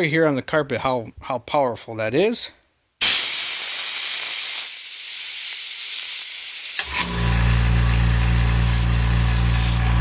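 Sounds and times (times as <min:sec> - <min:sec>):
air blowgun hissing: 0:03.0 - 0:10.0
compressor motor humming: 0:06.8 - 0:10.0.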